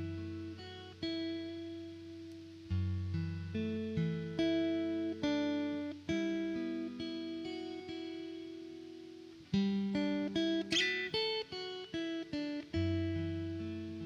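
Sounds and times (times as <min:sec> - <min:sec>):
plucked string instrument chords: 0:10.7 - 0:11.6.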